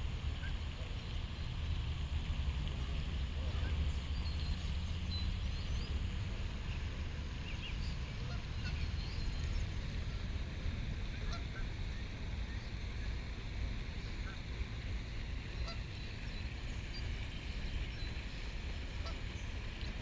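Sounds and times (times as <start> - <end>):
geese and goslings calling: 8.2 - 8.9, 15.6 - 15.8.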